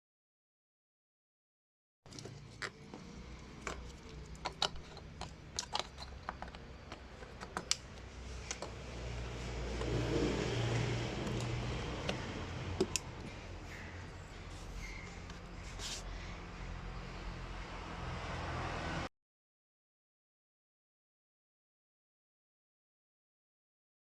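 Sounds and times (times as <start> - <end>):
car engine running: 2.2 - 17.3.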